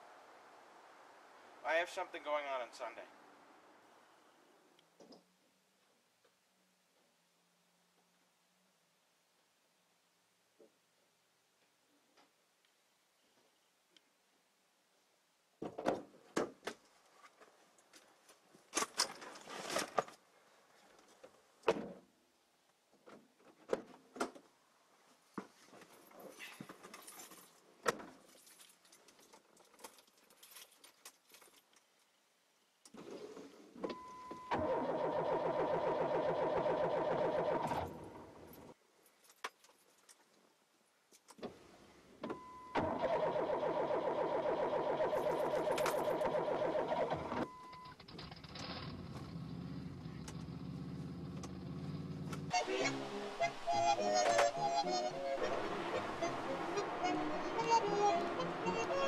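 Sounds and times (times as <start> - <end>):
car starter cranking engine: 34.5 - 38.6, 42.8 - 52.5
steady high tone: 52.6 - 59.0.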